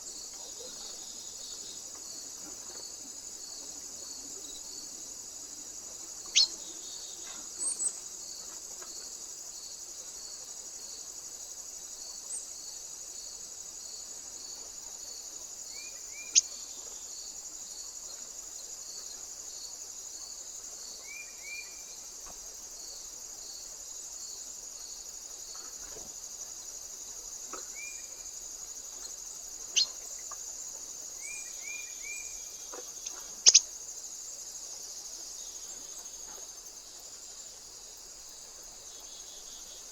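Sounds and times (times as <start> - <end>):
crickets chirping: 0.0 - 39.9
soft short bird chirps: 6.3 - 6.5, 33.0 - 33.7.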